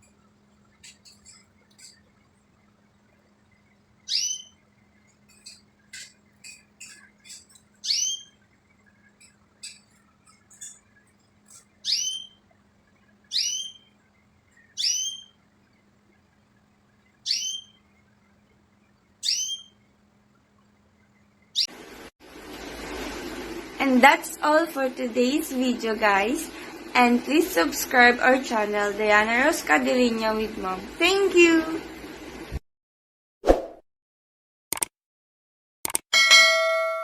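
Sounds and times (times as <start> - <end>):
faint bird chirps: 3.6 - 12.6, 13.3 - 20.0, 20.8 - 21.7
bird calling high and short: 4.1 - 4.6, 5.4 - 8.4, 11.5 - 12.5, 13.3 - 14.0, 14.6 - 15.4, 17.2 - 17.8, 19.2 - 19.8.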